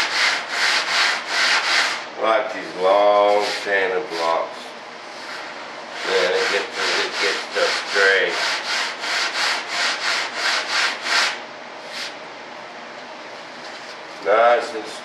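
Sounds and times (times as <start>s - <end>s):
sandpaper scratching on wood: 0.0s - 2.0s, 2.6s - 4.4s, 6.0s - 12.2s.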